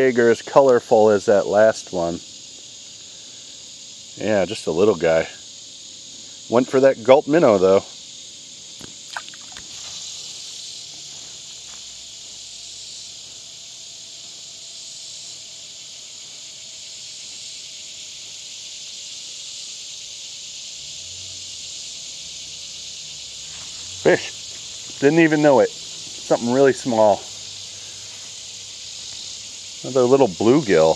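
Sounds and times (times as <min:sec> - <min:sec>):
insects buzzing: 0:00.0 - 0:30.9.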